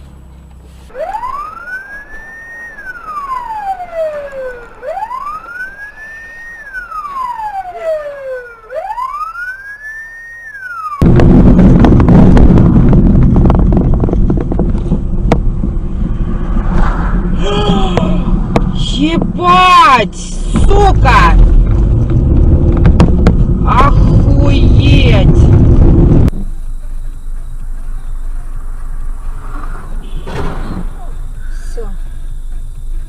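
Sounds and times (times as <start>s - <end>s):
emergency siren wailing: 0.9s - 11.1s.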